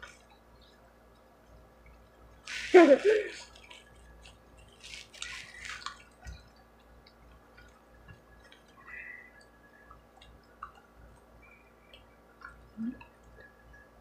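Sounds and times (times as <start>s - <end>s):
wet chewing and lip smacking: 3.4s - 11.3s.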